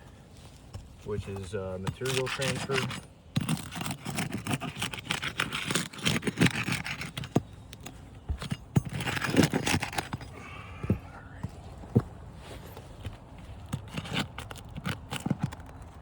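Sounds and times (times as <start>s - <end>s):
shingle removal tool prying nails: 1.4s - 11.0s, 13.6s - 16.0s.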